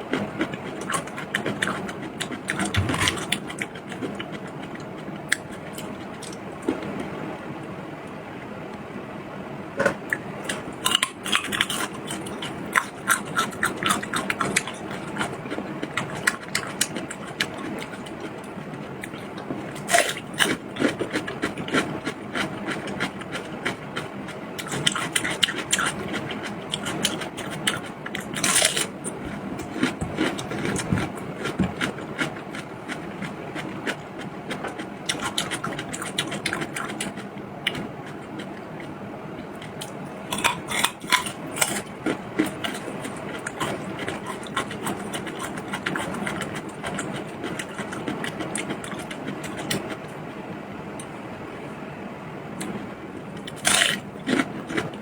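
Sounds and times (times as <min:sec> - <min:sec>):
person chewing and biting food: 0:00.1 - 0:07.1, 0:39.6 - 0:50.0, 0:53.4 - 0:55.0.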